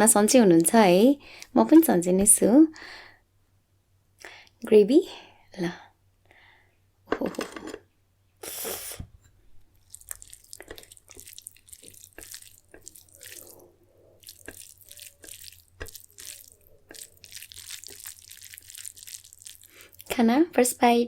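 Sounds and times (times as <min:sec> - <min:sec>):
soft wet squishes: 0:09.6 - 0:20.2
wet gravy pouring: 0:09.8 - 0:20.1.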